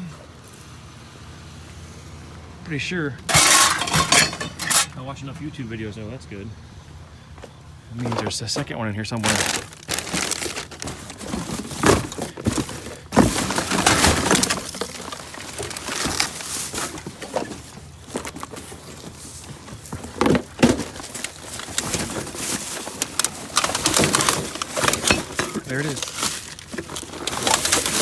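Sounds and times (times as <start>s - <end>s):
junk clattering and scraping: 2.7s - 28.0s
sharp impacts: 3.3s - 5.0s.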